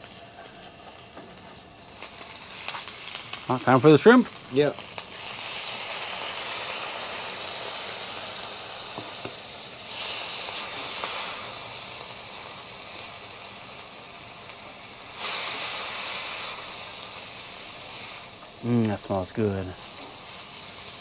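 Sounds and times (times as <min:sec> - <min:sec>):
shrimp sizzling in a pan: 0:00.0 - 0:21.0.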